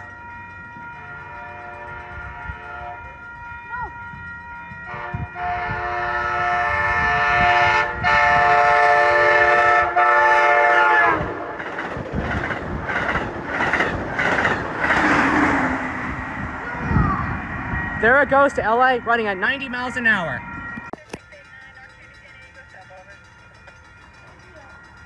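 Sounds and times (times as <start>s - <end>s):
train horn blast: 1.2s - 3.1s, 4.9s - 11.4s
train wheels clattering on rails: 11.4s - 17.0s, 20.8s - 25.0s.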